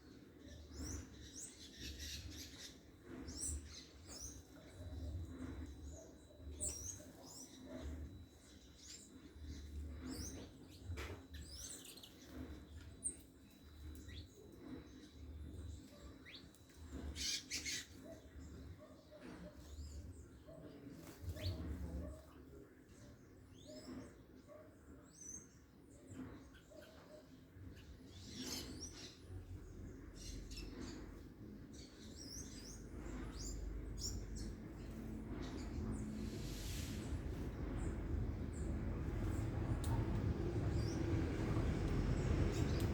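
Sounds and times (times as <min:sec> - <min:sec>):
small birds chirping: 0:00.0 - 0:42.9
faint pulsing low rumble: 0:29.5 - 0:42.9.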